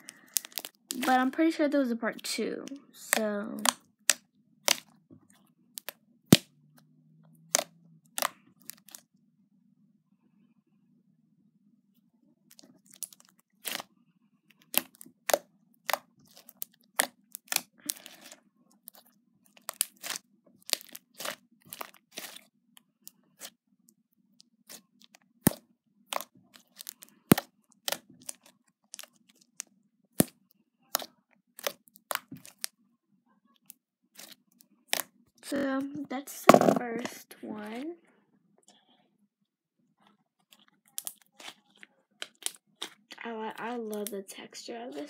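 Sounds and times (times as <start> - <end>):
slime squeezed and stretched: 3.1 - 4.9, 7.5 - 9.0, 12.5 - 13.9, 14.6 - 23.5, 24.6 - 29.6, 30.2 - 32.7, 34.2 - 35.1, 40.4 - 43.2.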